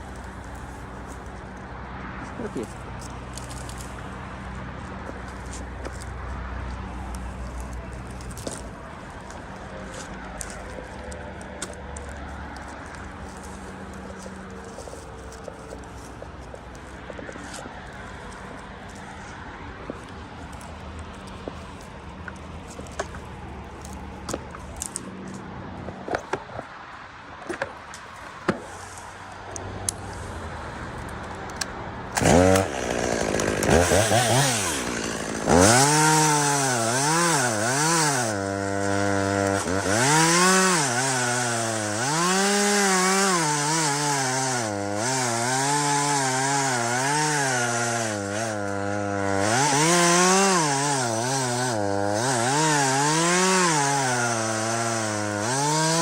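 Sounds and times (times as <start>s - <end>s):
chainsaw revving cutting wood: 32.1s - 56.0s.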